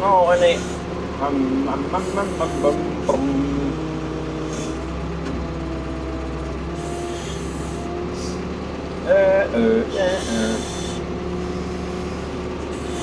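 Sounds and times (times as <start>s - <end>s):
excavator engine drone: 0.0s - 13.0s.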